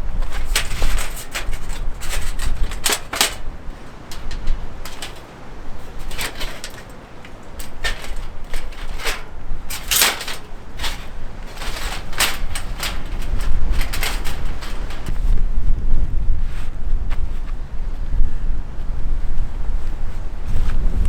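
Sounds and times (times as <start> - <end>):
wind rumble on microphone: 0.0 - 21.0
clicks and knocks of handling: 0.2 - 15.1.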